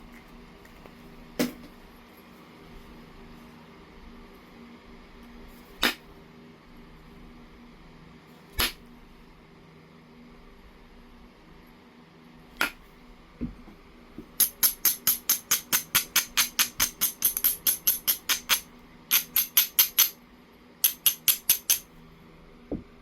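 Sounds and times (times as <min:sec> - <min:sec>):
sharp click: 0:20.8 - 0:21.9.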